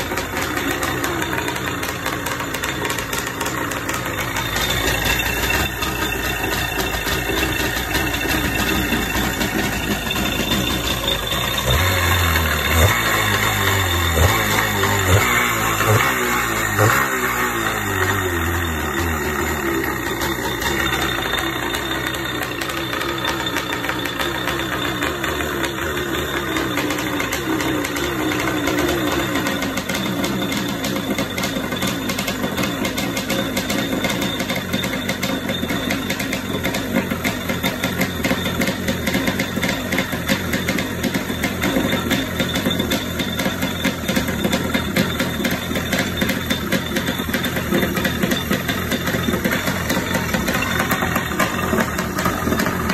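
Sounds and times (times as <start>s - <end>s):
two-stroke engine running: 0.0s - 52.9s.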